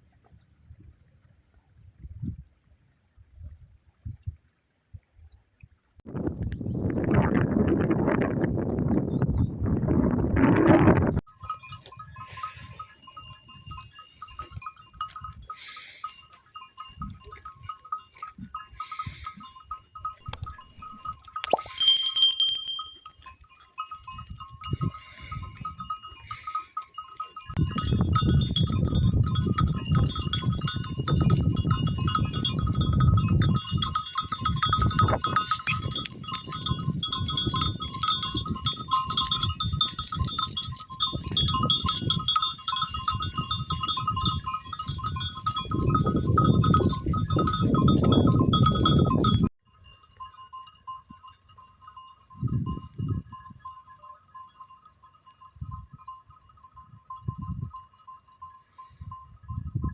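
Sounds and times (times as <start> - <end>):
high ring: 11.4 - 28.9.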